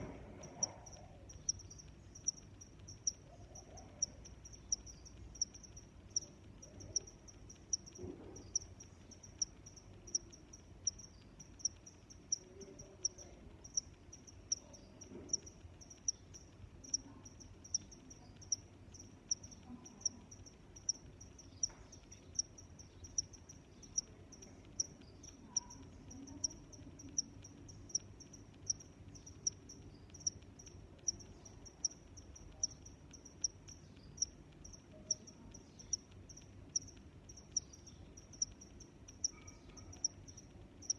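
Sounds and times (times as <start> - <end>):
cricket chirping: 0.0 - 40.9
faint low rumble: 0.0 - 40.9.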